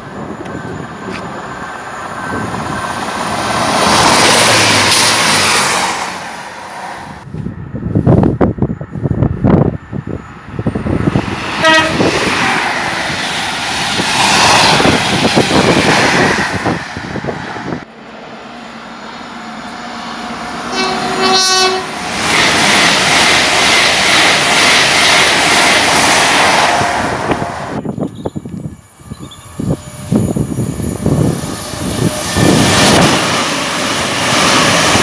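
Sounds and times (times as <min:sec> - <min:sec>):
train rushing past: 0:00.0 - 0:35.0
train horn: 0:11.6 - 0:12.4, 0:20.6 - 0:22.0.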